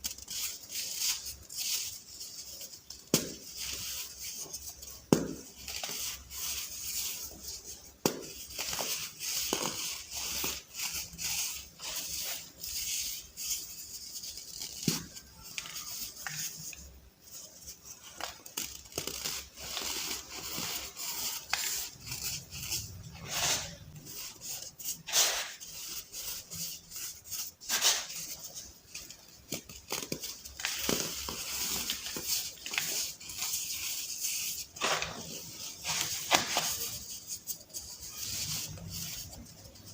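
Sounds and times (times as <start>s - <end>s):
baking soda crunching and crackling: 0.0s - 39.9s
gritty powdery hiss: 0.0s - 39.9s.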